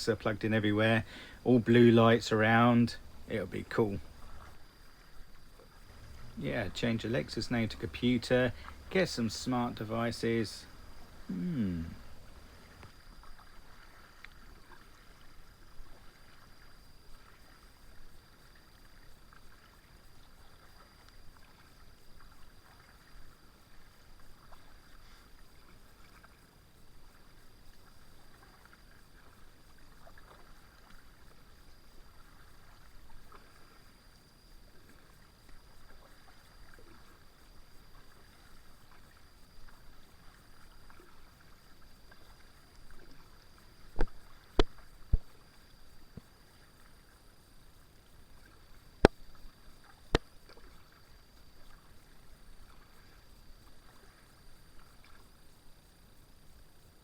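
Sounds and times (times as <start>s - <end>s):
paddle splashing water: 0.0s - 57.0s.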